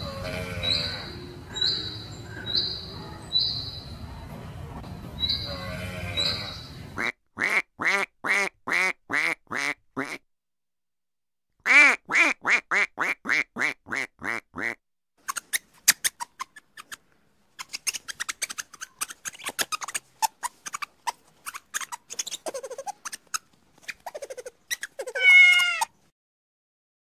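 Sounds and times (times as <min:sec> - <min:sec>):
wavering animal call: 0:00.0 - 0:02.8
duck quacking: 0:05.5 - 0:10.2, 0:11.7 - 0:14.8
clicks and scratches: 0:17.6 - 0:25.9.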